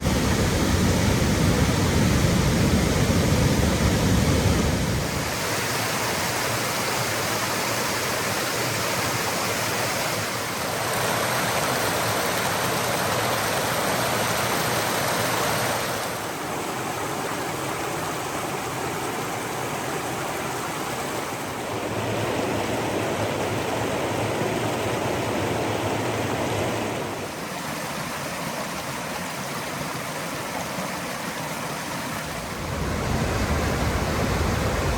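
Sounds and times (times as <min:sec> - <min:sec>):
deep water rumble: 0:00.0 - 0:05.3, 0:32.2 - 0:34.9
waterfall roaring over rocks: 0:00.0 - 0:34.9.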